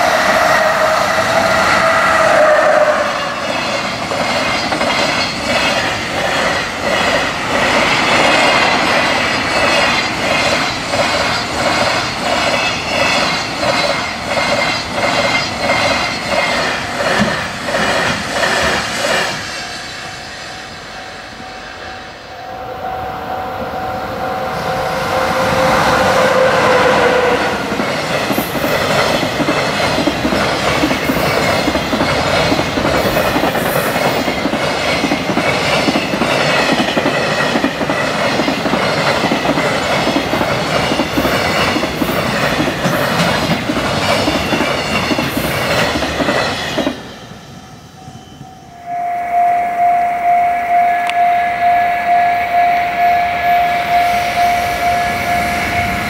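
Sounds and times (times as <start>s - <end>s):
train horn: 0.0s - 3.5s, 21.4s - 27.9s, 48.6s - 56.0s
level-crossing alarm bell ringing: 47.7s - 56.0s.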